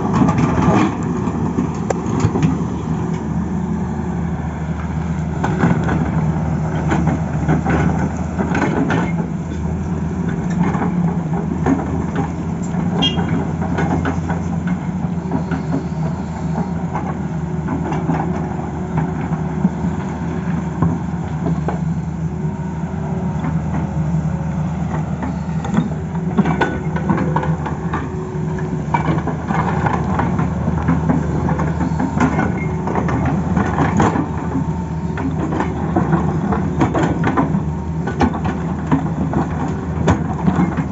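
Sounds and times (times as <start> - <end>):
excavator diesel engine running: 0.0 - 40.9
metal clanks and knocks: 24.9 - 40.9.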